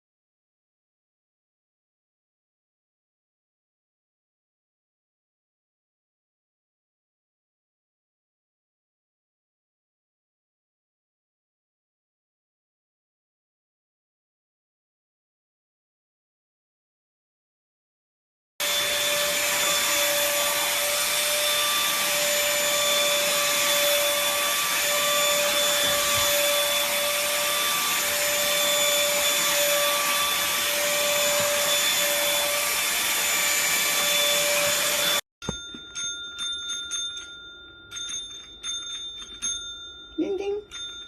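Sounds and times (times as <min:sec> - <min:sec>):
appliance motor whining: 0:18.6 - 0:35.2
steady ringing tone: 0:35.4 - 0:41.0.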